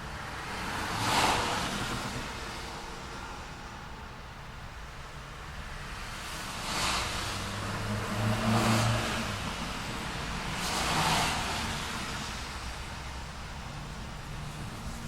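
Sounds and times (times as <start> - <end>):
car passing with tyre noise: 0.0 - 15.0
vehicle engine humming: 7.1 - 15.0.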